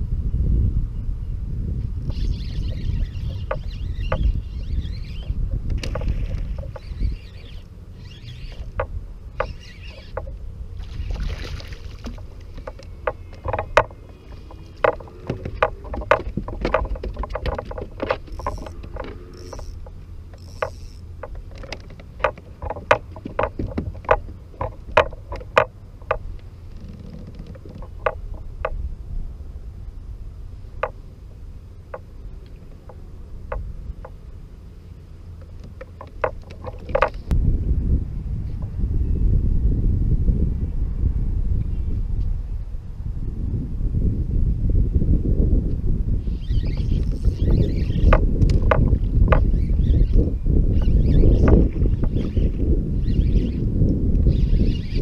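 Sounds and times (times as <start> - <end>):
wind rumble on microphone: 0.0 - 55.0
fishing gear knocking on plastic: 12.0 - 26.2, 26.8 - 28.8, 35.5 - 37.3, 48.0 - 49.5.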